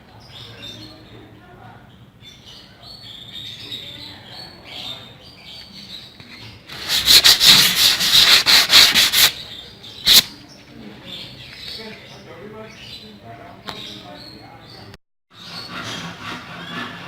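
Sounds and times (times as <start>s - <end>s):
sandpaper rasping on wood: 6.7s - 9.4s, 10.1s - 10.3s, 15.4s - 17.0s.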